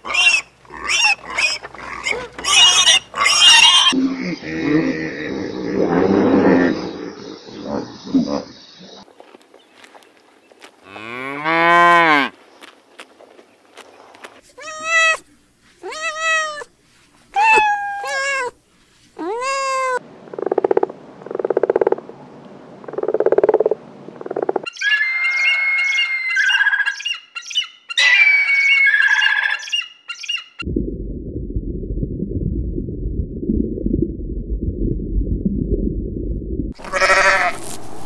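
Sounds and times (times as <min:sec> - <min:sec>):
kittens meowing: 0:14.6 - 0:15.2, 0:15.8 - 0:16.7, 0:17.4 - 0:18.5, 0:19.2 - 0:20.0, 0:36.8 - 0:37.6.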